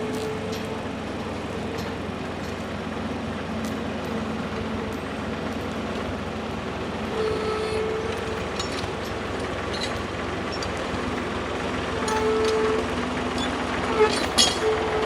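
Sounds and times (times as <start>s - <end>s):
tractor engine running: 0.0s - 15.0s
light metallic clinks: 8.1s - 11.3s.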